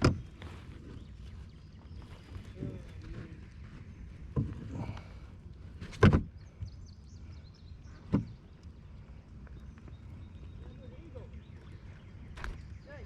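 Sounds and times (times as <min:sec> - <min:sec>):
knocks and thumps on a kayak: 0:00.0 - 0:01.2, 0:02.2 - 0:05.0, 0:05.8 - 0:06.8, 0:07.9 - 0:08.6.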